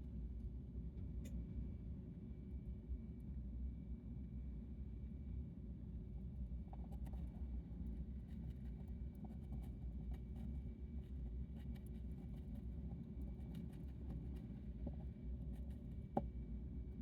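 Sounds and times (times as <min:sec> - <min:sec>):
steady low hum: 0:00.0 - 0:17.0
hamster chewing clicks: 0:11.5 - 0:16.3.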